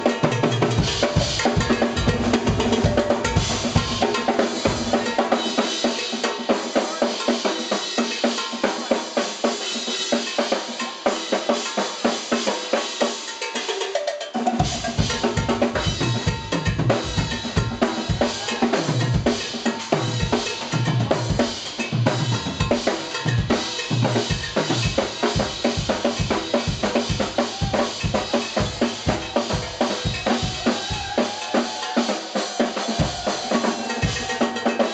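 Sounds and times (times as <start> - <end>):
jazz fusion band playing: 0.0 - 9.4, 14.6 - 31.9
cowbell: 0.0 - 34.9
drum rimshots: 0.0 - 34.9.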